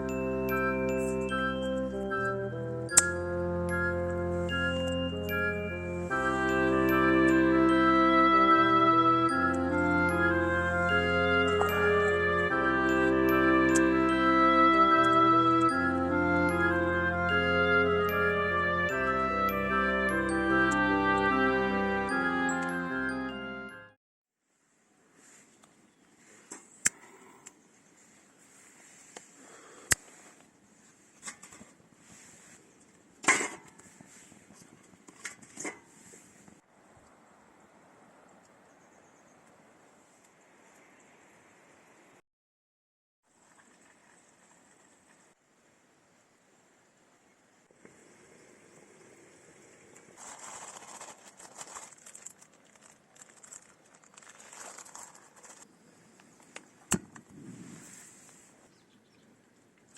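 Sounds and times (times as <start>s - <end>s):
crackling crinkling noise: 24.9s - 37.2s, 47.7s - 58.7s
faint steady hiss: 43.4s - 51.9s.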